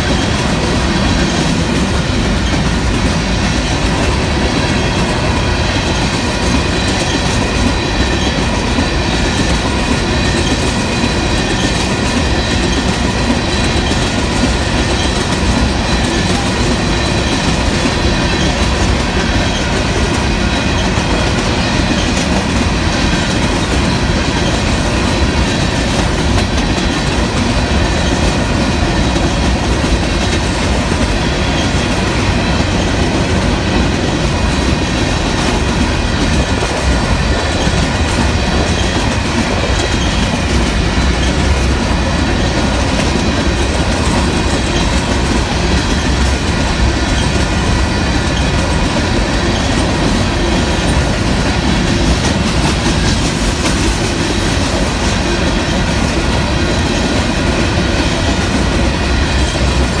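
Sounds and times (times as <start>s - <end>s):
train wheels clacking over rail joints: 0.0s - 60.0s.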